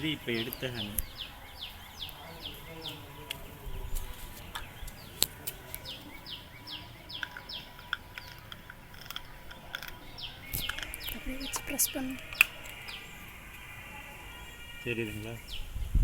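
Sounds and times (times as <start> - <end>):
bird calling high falling notes: 4.5 - 15.9
sharp clicks: 7.1 - 13.7.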